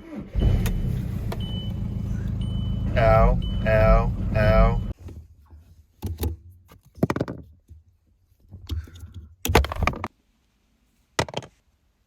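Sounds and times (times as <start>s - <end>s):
knocks and clatters: 6.0s - 7.8s.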